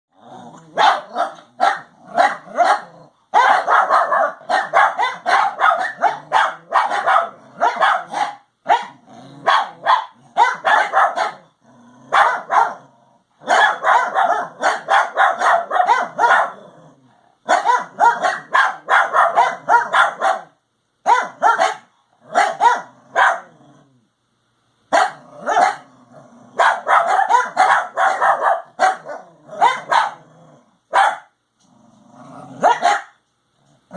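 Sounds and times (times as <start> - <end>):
dogs barking: 0.7 - 11.5, 12.1 - 16.6, 17.4 - 23.5, 24.9 - 25.9, 26.6 - 30.2, 30.9 - 31.4, 32.6 - 33.2.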